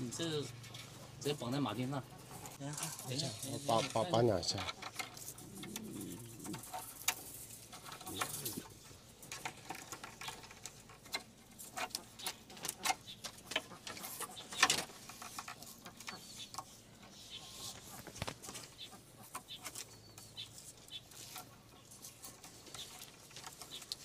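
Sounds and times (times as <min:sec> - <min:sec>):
pigeon cooing: 0:04.9 - 0:08.9.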